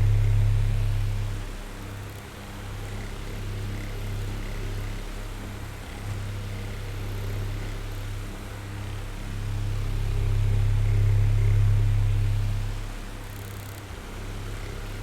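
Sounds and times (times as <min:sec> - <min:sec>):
electric fan motor hum: 0:00.0 - 0:01.9.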